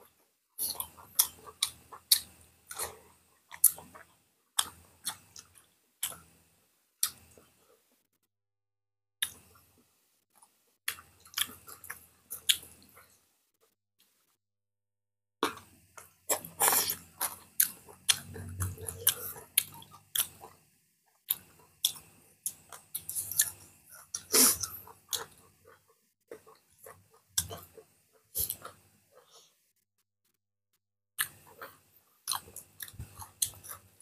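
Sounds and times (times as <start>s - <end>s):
wet chewing: 16.3s - 20.6s.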